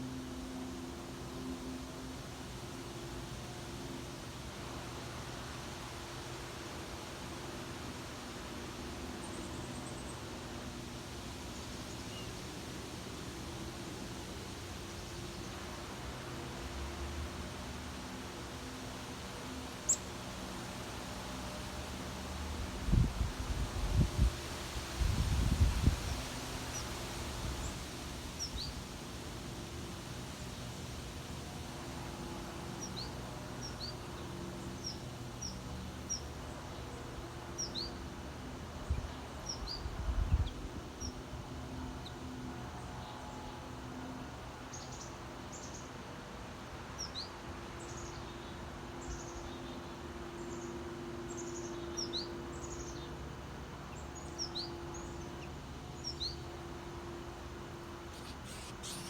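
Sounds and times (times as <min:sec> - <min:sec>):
small songbirds chirping: 0:19.8 - 0:20.4, 0:25.2 - 0:28.9, 0:32.6 - 0:38.0, 0:38.8 - 0:41.2, 0:47.0 - 0:56.8, 0:57.6 - 0:59.0.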